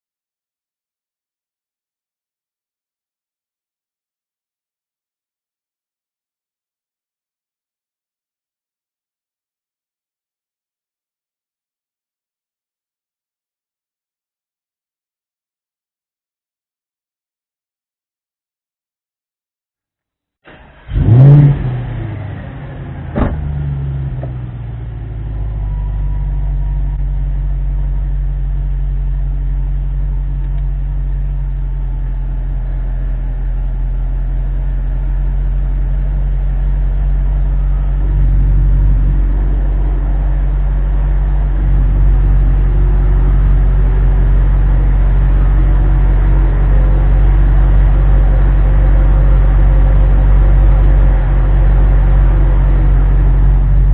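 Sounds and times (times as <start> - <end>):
car engine idling: 20.5 - 53.9
car engine starting and revving: 20.5 - 53.9.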